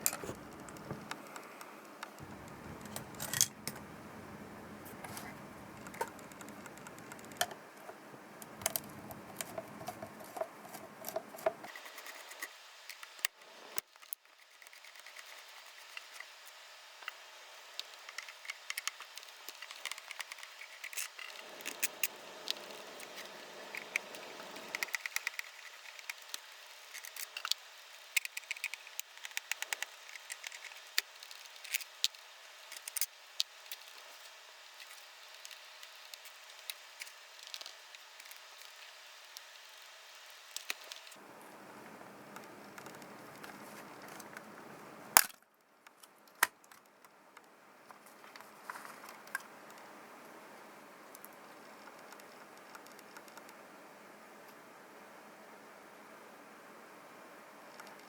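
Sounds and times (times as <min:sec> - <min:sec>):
small tools clicking and tapping: 0:17.8 - 0:34.1.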